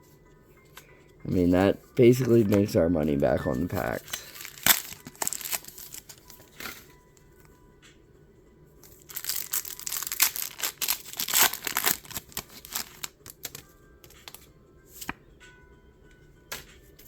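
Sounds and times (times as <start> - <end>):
plastic wrapper crinkling and tearing: 3.6 - 6.8, 8.9 - 13.6.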